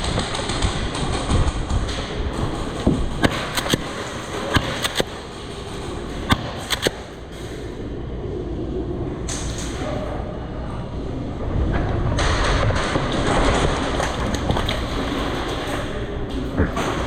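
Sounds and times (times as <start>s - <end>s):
airsoft guns firing: 0.0s - 7.4s
low rumble of handling noise: 0.0s - 17.0s.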